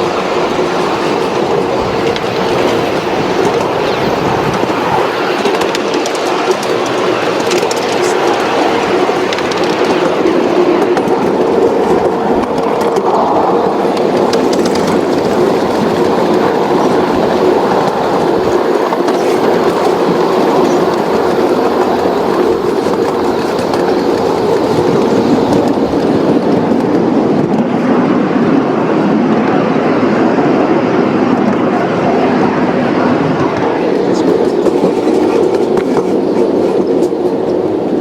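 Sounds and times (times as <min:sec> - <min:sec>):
constant hum: 0:00.0 - 0:38.0
train wheels on rails: 0:00.0 - 0:38.0.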